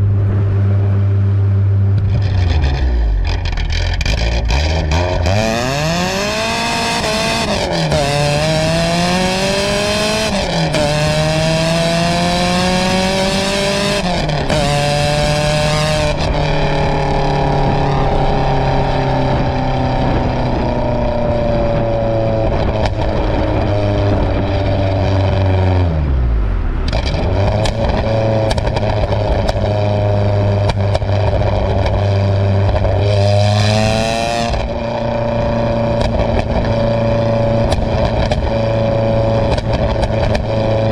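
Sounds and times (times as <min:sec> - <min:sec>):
car engine idling: 0:00.0 - 0:05.2
car engine revving: 0:00.0 - 0:40.9.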